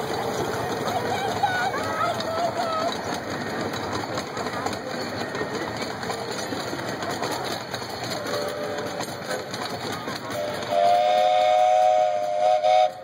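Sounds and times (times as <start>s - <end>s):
miniature train cars clattering: 0.0s - 13.0s
train chime whistle: 10.4s - 13.0s.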